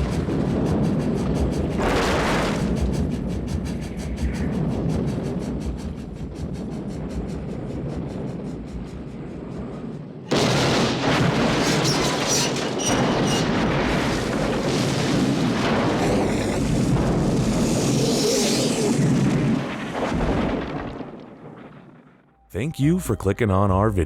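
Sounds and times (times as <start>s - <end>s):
music: 22.3s - 24.0s.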